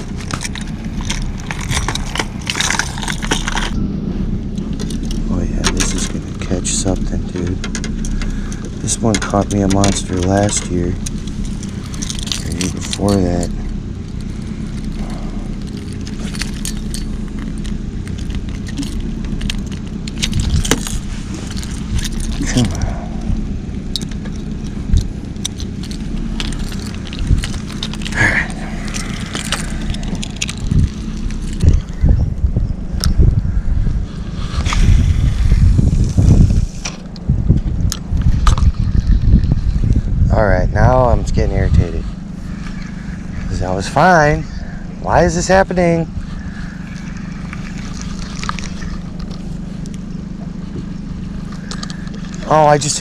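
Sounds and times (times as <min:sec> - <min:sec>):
motor hum: 0:00.0 - 0:53.0.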